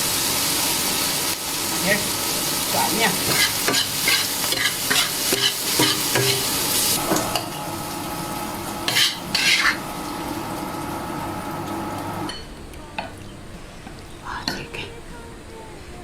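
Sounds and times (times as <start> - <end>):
food sizzling: 0.0 - 12.4
spatula scraping a pan: 3.3 - 7.0, 8.9 - 9.8.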